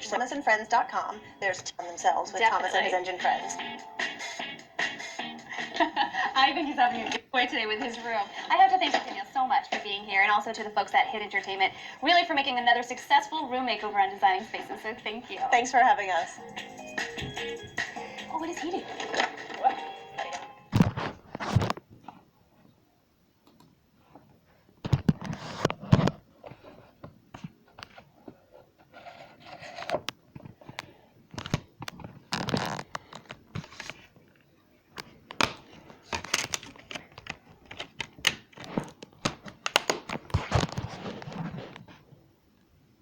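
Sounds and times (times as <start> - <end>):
crinkling: 18.8 - 22.7, 24.0 - 42.3.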